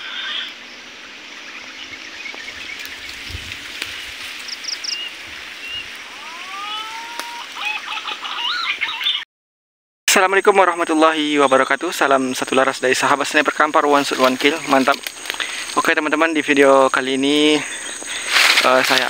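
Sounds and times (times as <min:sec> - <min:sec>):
bird chirps: 0:00.0 - 0:03.4, 0:04.4 - 0:09.2
steady outdoor hiss: 0:00.0 - 0:09.2, 0:10.1 - 0:19.0
rising whistled bird calls: 0:04.4 - 0:09.2.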